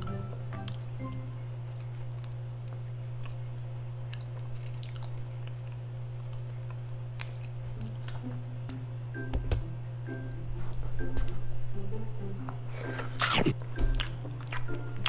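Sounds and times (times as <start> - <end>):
low hum: 0.0 - 15.0
chewing seafood: 1.6 - 8.4, 13.2 - 15.0.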